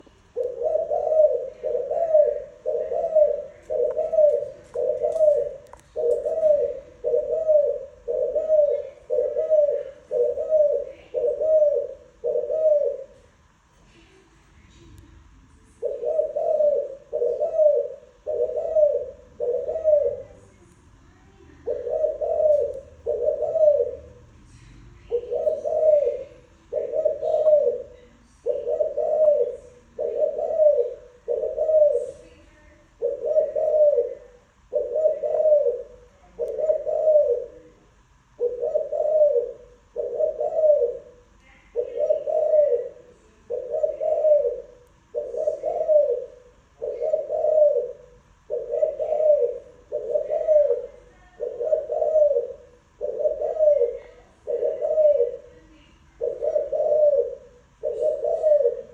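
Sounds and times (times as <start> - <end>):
dove cooing: 0.0 - 13.7, 15.7 - 20.6, 21.5 - 24.3, 25.0 - 58.9.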